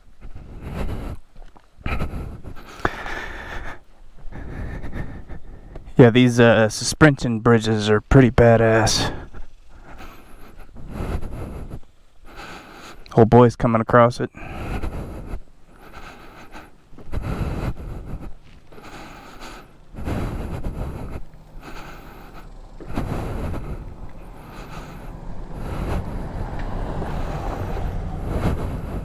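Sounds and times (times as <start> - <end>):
vehicle engine hum: 0.0 - 29.0
rumbling over wooden planks: 15.8 - 29.0.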